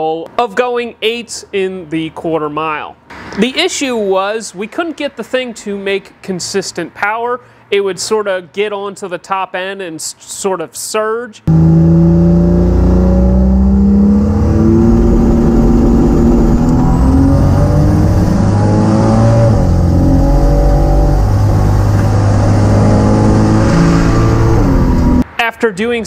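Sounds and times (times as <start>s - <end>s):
turbocharged engine at full throttle: 11.5s - 25.2s.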